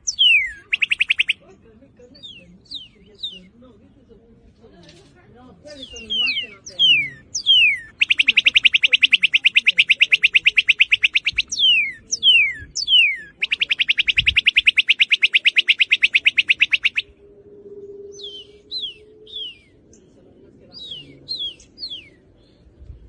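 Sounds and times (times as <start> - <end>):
cardinal whistles and trills: 0.0 - 1.4, 5.8 - 19.9.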